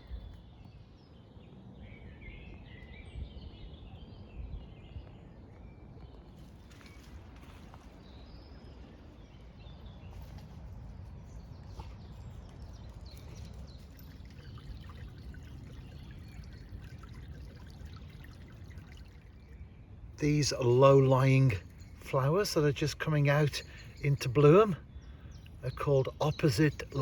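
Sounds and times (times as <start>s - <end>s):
brook trickling: 6.4s - 27.0s
faint bird chirps: 6.7s - 27.0s.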